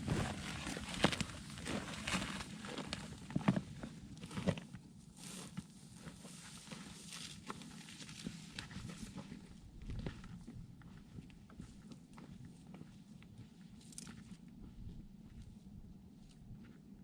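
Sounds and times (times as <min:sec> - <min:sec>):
boots crunching on rocky ground: 0:00.0 - 0:04.5.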